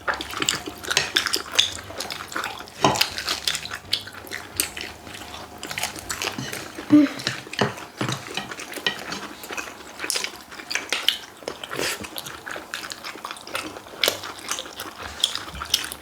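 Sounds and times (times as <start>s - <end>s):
utensils tapping plates and bowls: 0.0s - 11.6s.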